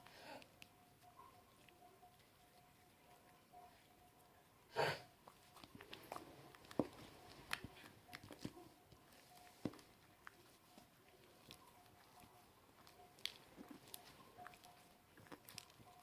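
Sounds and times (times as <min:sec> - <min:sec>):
hands kneading slime: 0:05.3 - 0:16.0.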